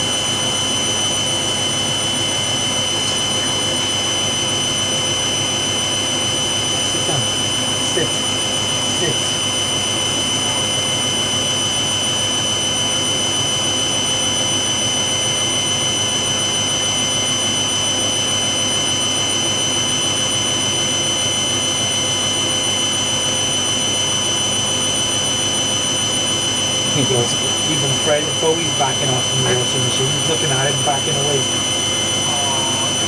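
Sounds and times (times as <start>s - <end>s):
washer dryer spinning: 0.0s - 33.0s.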